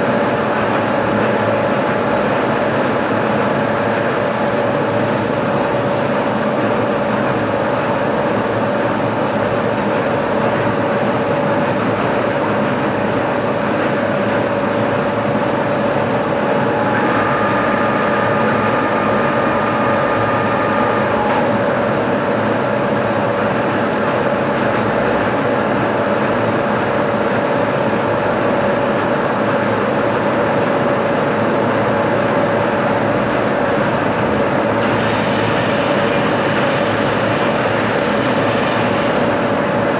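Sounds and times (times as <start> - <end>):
high steady whine: 12.8 - 24.0, 31.2 - 39.9
machine tool running: 34.8 - 39.9.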